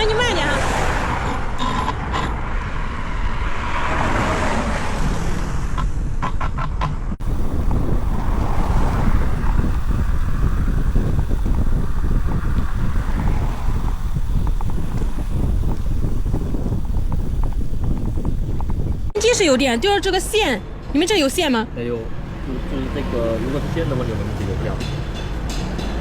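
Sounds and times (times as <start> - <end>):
wind buffeting microphone: 7.2 - 26.0.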